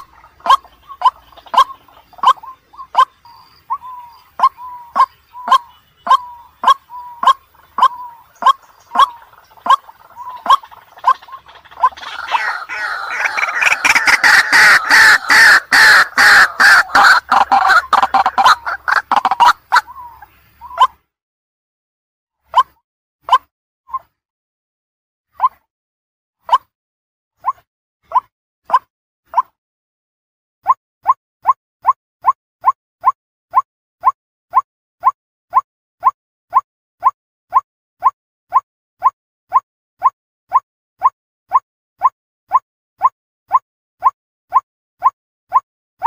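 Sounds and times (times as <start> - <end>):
waterhen clucking calls: 0.0 - 21.0, 27.4 - 29.5.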